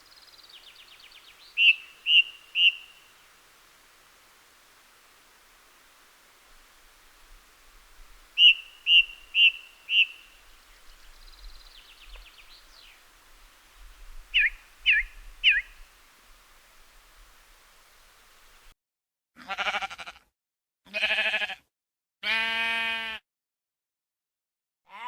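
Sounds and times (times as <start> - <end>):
bird calling: 0.0 - 3.2, 8.4 - 13.1, 14.3 - 15.9.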